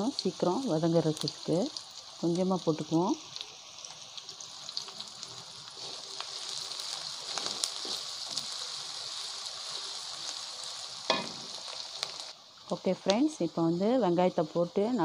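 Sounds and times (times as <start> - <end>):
onions sizzling in hot oil: 0.0 - 15.0
wooden spatula scraping wok: 5.8 - 10.1.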